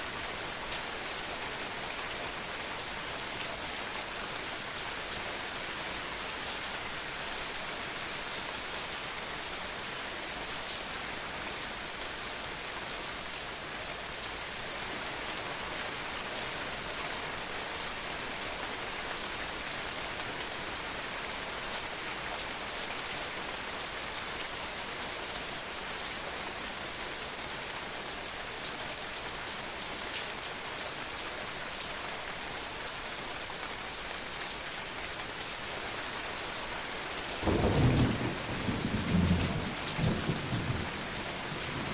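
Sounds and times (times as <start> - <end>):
steady rain falling: 0.0 - 41.9
thunder rumbling: 37.4 - 40.9.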